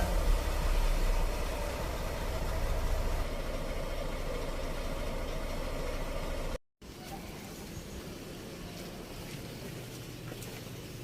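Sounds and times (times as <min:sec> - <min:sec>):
vehicle engine idling: 0:00.0 - 0:06.6.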